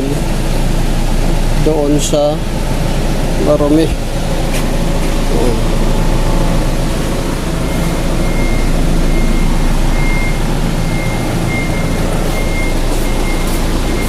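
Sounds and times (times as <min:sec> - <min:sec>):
low mechanical drone: 0:00.0 - 0:14.0
faint high beeping: 0:07.1 - 0:14.0.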